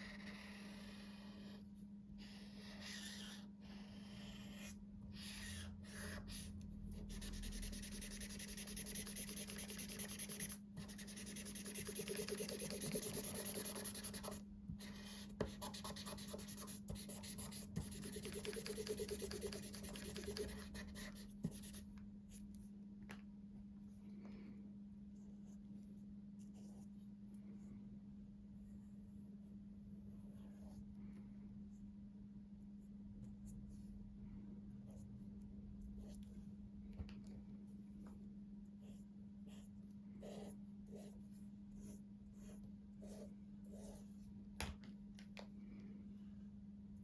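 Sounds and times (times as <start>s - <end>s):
marker tips scratching: 7.1s - 21.8s.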